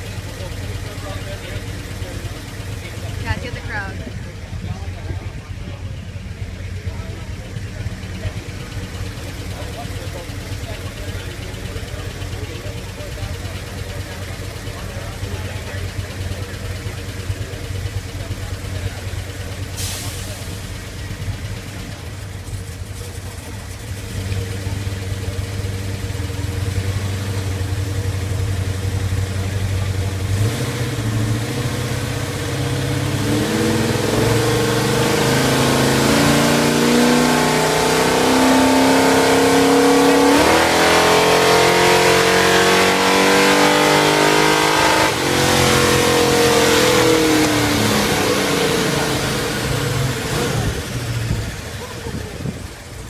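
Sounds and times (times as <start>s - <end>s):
vee eight engine revving: 0.0s - 53.0s.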